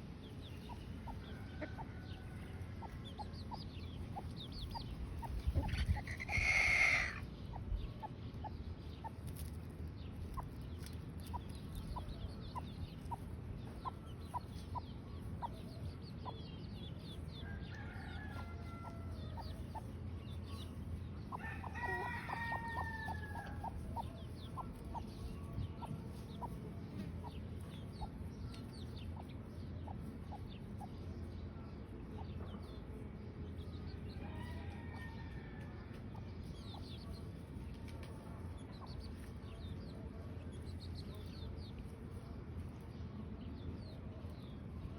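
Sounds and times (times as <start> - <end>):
chickens clucking: 0.0 - 44.9
chicks peeping: 0.0 - 44.9
chicken calls: 4.2 - 8.2.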